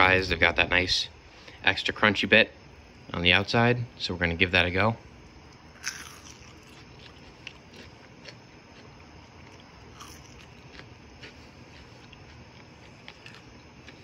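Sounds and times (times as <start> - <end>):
chewing with faint crunches: 5.5 - 14.0
crunch of biting fry: 5.5 - 14.0.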